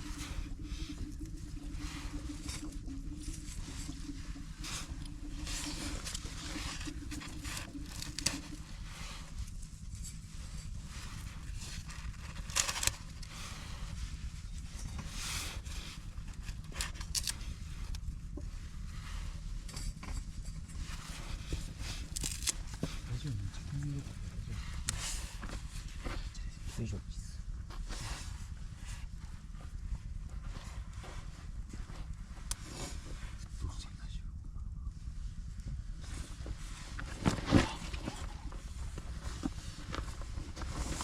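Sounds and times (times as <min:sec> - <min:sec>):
campfire crackling: 0:00.0 - 0:13.4
faint steady hum: 0:00.0 - 0:41.0.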